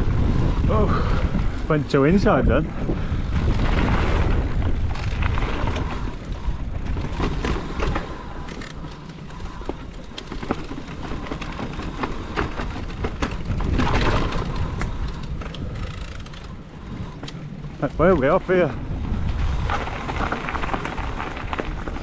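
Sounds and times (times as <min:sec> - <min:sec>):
bike rattles and clicks: 0:00.0 - 0:22.0
bike tyres rumbling on dirt: 0:00.0 - 0:22.0
wind buffeting microphone: 0:00.0 - 0:22.0.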